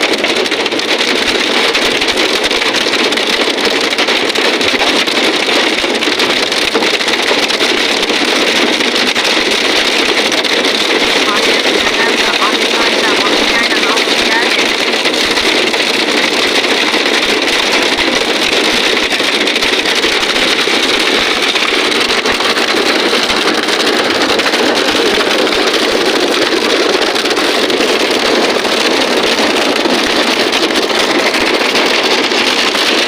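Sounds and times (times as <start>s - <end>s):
heavy rain and hail falling: 0.0s - 33.0s.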